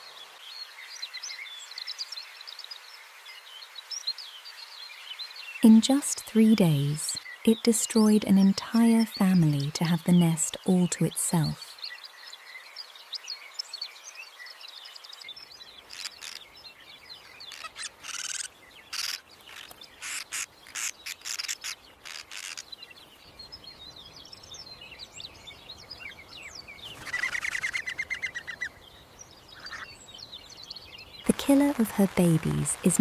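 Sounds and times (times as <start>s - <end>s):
small birds chirping: 0.0s - 33.0s
fast bird trill: 17.4s - 22.7s.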